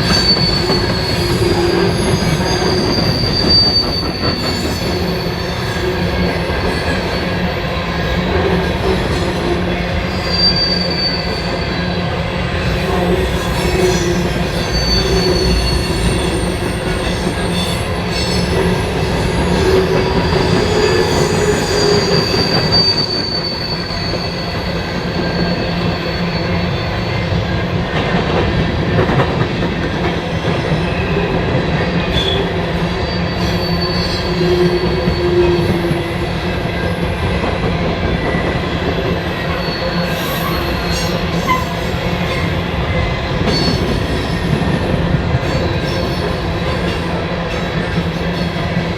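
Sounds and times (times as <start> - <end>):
wheel squeal: 0.0 - 7.3, 10.1 - 11.7, 13.4 - 27.2, 33.0 - 35.9
train wheels rumbling on rails: 0.0 - 48.9.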